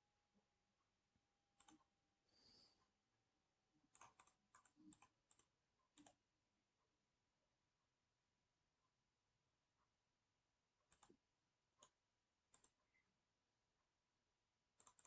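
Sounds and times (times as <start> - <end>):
mouse and keyboard clicks: 1.6 - 1.8, 3.9 - 6.2, 10.9 - 11.2, 11.8 - 12.8, 14.8 - 15.0.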